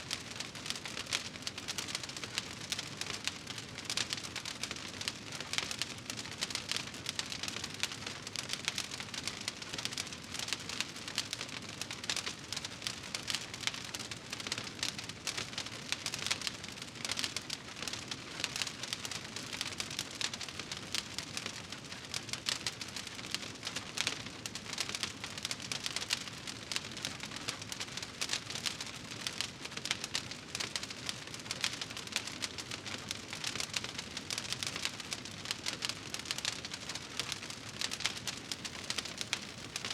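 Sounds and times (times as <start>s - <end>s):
wood fire crackling: 0.1s - 39.9s.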